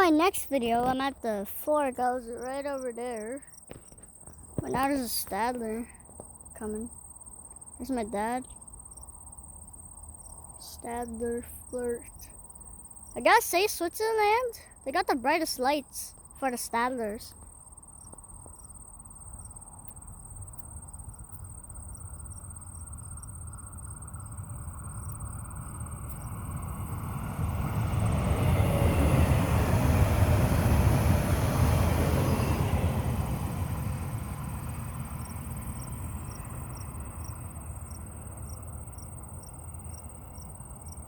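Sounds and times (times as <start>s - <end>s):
crickets chirping: 0.0s - 41.0s
train rumbling past on rails: 18.7s - 41.0s.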